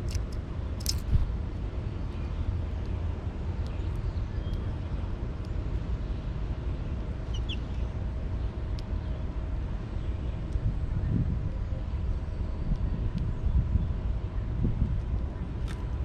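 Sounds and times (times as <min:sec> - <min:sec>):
low outdoor rumble: 0:00.0 - 0:16.0
faint bird chirps: 0:07.3 - 0:07.9
light ticks: 0:08.7 - 0:08.9, 0:12.7 - 0:13.3.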